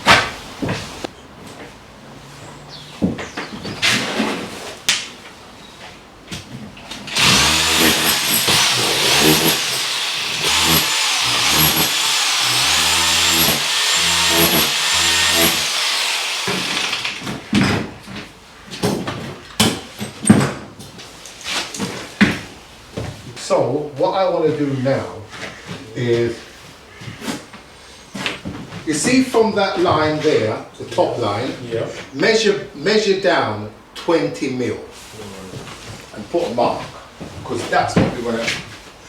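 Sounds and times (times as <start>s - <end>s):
power drill running: 7.1s - 17.2s
sharp knocks: 7.2s - 16.9s.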